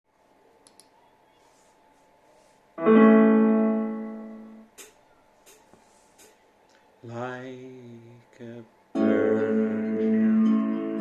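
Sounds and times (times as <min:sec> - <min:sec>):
faint click: 0:00.6 - 0:01.0
piano chord ringing: 0:02.8 - 0:04.6.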